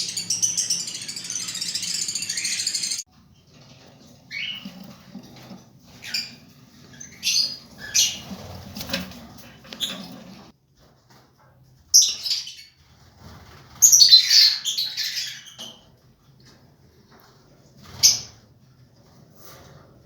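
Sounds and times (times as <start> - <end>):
lovebirds chirping and squawking: 0.0 - 3.0, 4.3 - 5.0, 5.9 - 10.5, 11.9 - 12.8, 13.7 - 16.0.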